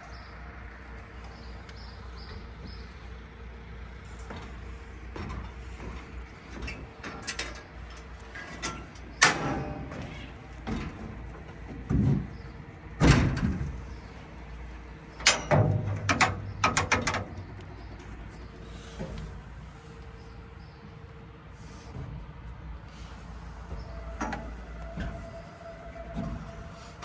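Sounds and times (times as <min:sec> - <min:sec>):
metal panels banging and clanking: 0:04.1 - 0:19.9, 0:23.2 - 0:27.0.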